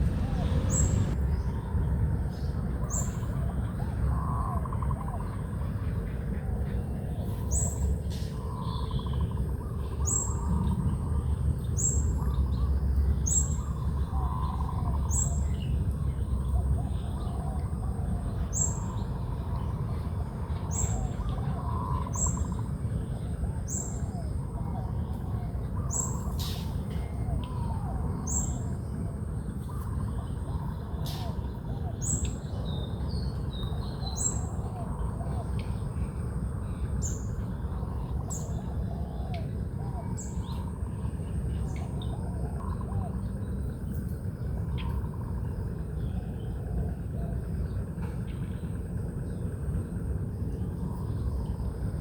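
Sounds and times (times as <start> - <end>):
bird lower trill: 0.0 - 1.2
steady low rumble: 0.0 - 4.1.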